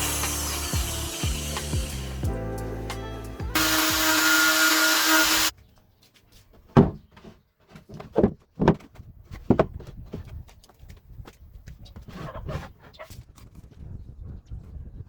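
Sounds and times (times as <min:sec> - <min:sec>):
power tool running: 0:00.0 - 0:02.3, 0:03.5 - 0:05.5.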